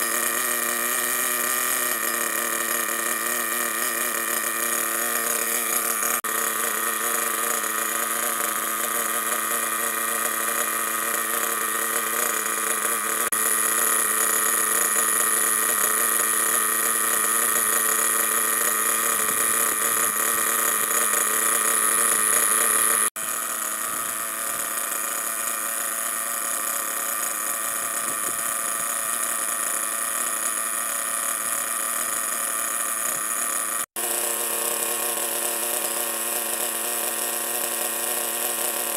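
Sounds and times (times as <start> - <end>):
model car nitro engine running: 0.0 - 38.9.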